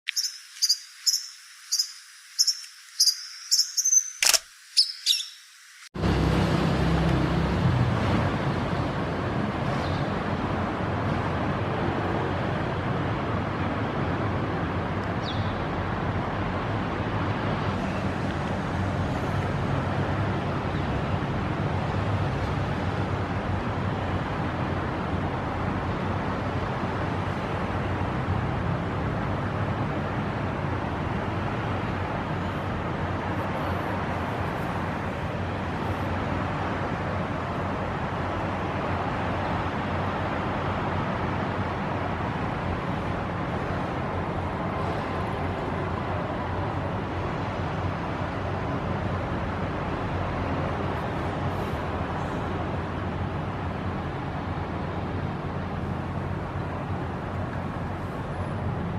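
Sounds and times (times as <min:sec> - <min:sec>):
faint high chirp: 0:00.1 - 0:05.7
road traffic rumble: 0:00.1 - 0:58.9.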